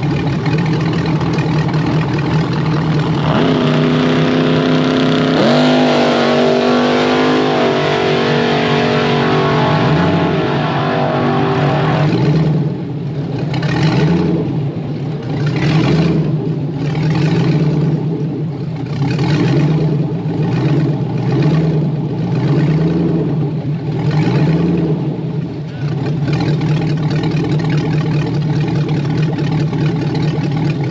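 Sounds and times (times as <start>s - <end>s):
engine revving hard: 3.1s - 13.0s.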